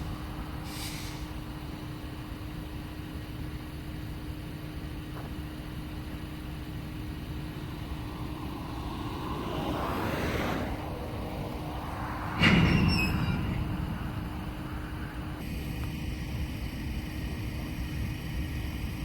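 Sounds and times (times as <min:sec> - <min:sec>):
road vehicle passing: 0:00.0 - 0:03.8, 0:04.8 - 0:15.6
low engine rumble: 0:00.0 - 0:19.0.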